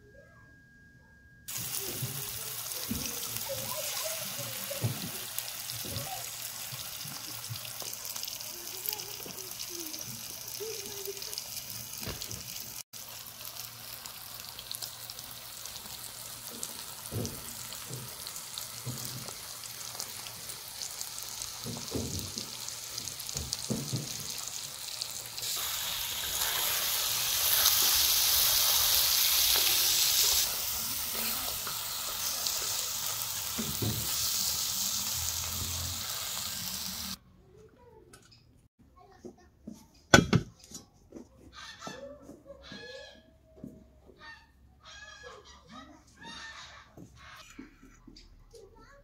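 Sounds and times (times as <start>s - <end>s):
food sizzling in a pan: 1.5s - 37.2s.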